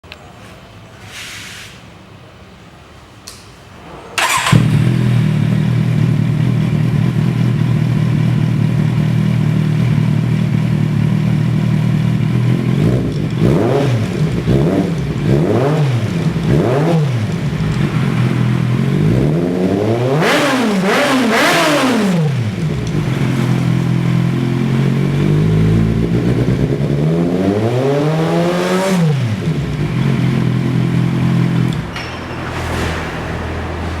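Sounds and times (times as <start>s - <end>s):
motorcycle engine idling and revving: 4.2s - 34.0s.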